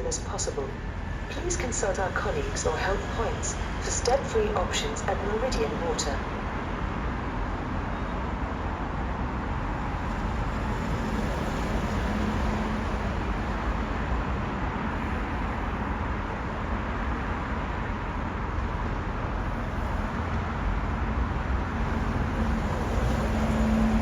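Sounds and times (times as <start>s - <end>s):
faint steady hum: 0.0s - 10.9s, 11.5s - 24.0s
railway station low rumble: 0.0s - 24.0s.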